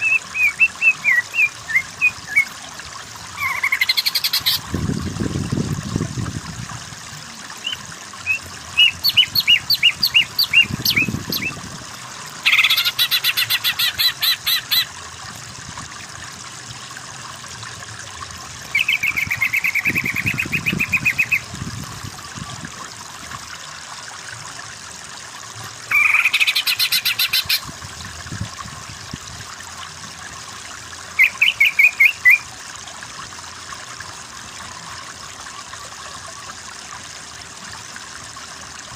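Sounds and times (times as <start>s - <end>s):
bird singing chirps and trills: 0.0s - 2.6s, 3.4s - 4.6s, 7.6s - 11.6s, 12.4s - 14.9s, 18.7s - 21.5s, 31.2s - 32.5s.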